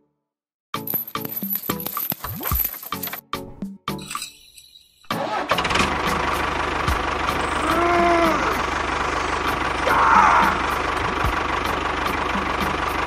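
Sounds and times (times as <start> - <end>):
tractor engine chugging: 5.1 - 13.0.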